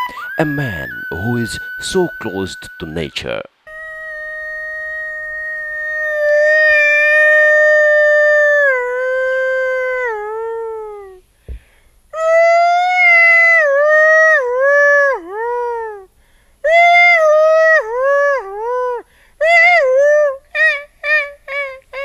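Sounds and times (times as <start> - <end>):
animal howling: 0.0 - 2.9, 3.7 - 11.2.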